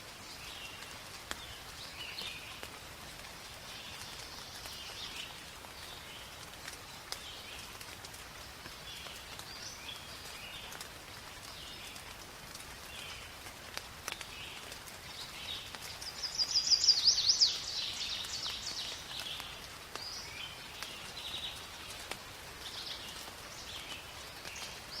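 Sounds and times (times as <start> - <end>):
rain falling: 0.0 - 25.0
raindrops ticking: 0.0 - 25.0
birds calling: 14.6 - 22.0.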